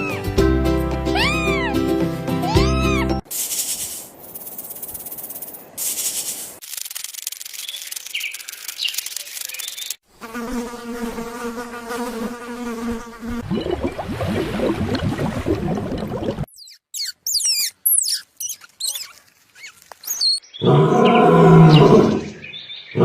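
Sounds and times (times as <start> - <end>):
insect chirps: 3.3 - 10.0, 16.6 - 20.6
insects buzzing: 3.3 - 13.4.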